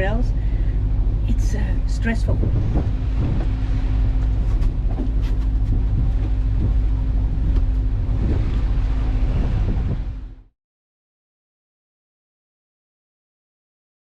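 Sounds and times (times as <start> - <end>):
boat engine droning: 0.0 - 10.5.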